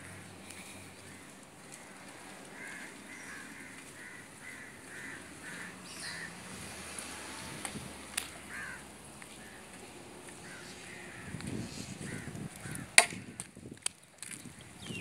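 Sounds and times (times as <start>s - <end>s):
bird repeated calls: 2.6s - 6.4s.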